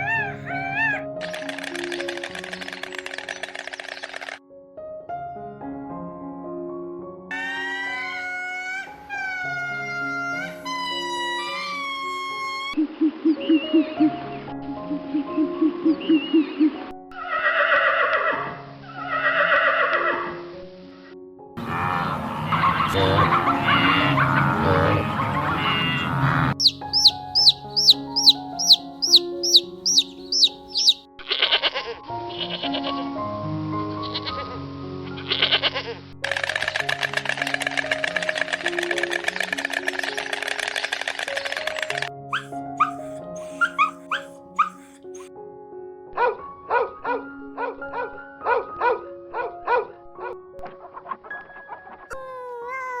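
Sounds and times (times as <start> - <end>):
cat meowing: 0.0 - 1.0
background music: 0.0 - 53.0
sheep or goat bleating: 22.9 - 26.6
rapid high falling chirps: 26.6 - 31.0.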